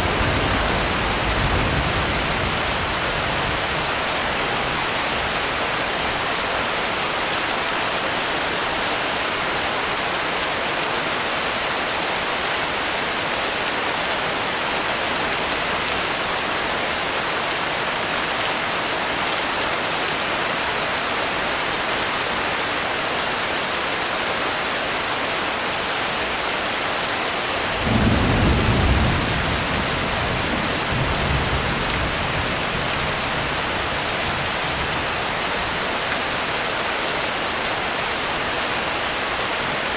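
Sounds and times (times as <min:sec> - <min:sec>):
thunder rumbling: 0:00.0 - 0:04.7, 0:27.7 - 0:35.0
heavy rain: 0:00.0 - 0:39.9.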